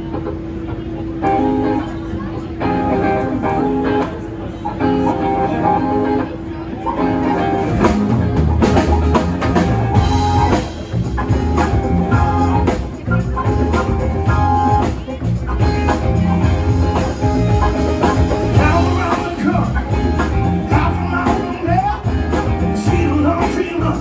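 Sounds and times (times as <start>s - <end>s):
live rock band playing: 0.0s - 24.0s
bass drum: 8.0s - 24.0s.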